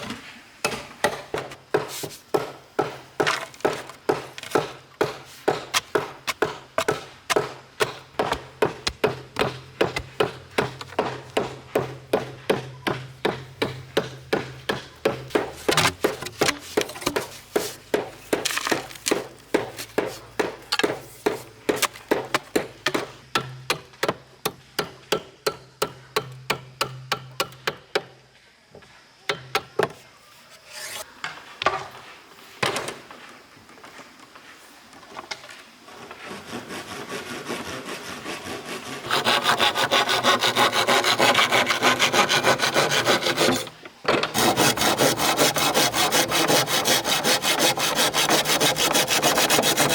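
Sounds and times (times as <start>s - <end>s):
hammering on bamboo: 0.6s - 28.2s, 44.3s - 49.9s
rasping on bamboo: 14.3s - 22.0s, 36.2s - 43.7s, 44.3s - 49.9s.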